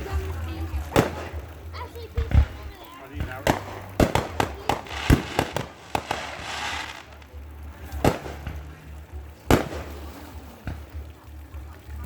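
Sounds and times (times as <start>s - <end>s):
fireworks crackling hiss: 0.0s - 11.0s
fireworks bangs: 3.2s - 7.4s.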